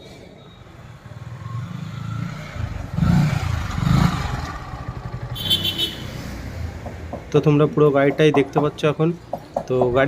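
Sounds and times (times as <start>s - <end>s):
motorcycle engine rumbling: 0.5s - 10.0s.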